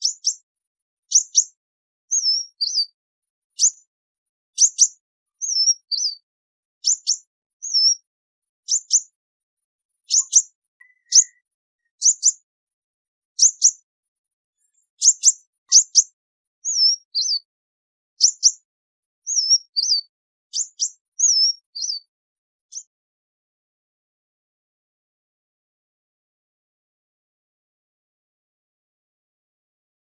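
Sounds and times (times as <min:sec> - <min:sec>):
bird high sharp call notes: 0:10.1 - 0:12.4.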